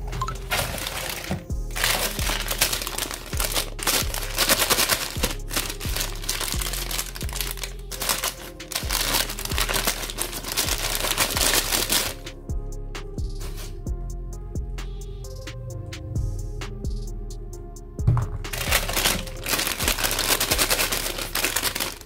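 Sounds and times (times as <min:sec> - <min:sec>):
background music with steady beat: 0:00.0 - 0:22.0
tissue paper crinkling: 0:00.3 - 0:12.2, 0:18.5 - 0:22.0.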